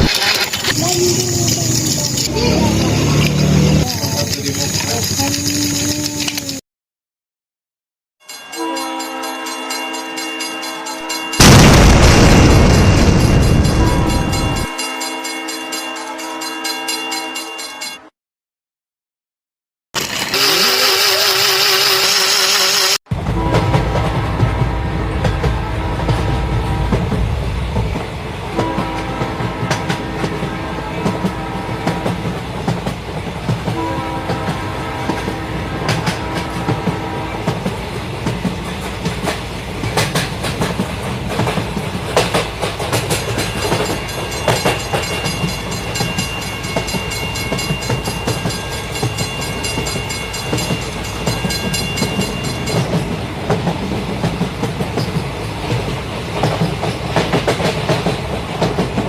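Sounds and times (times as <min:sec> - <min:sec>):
toy train motor hum: 0:00.0 - 0:06.6, 0:20.0 - 0:23.0
toy train wheels clicking: 0:00.0 - 0:06.6, 0:20.0 - 0:23.0
toy electronic sounds: 0:20.0 - 0:23.0.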